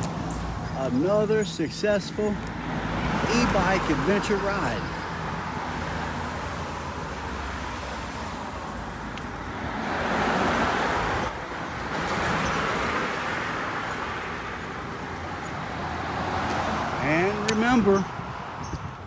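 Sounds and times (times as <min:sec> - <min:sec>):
road traffic noise: 0:00.0 - 0:19.0
car passing by: 0:09.6 - 0:17.3.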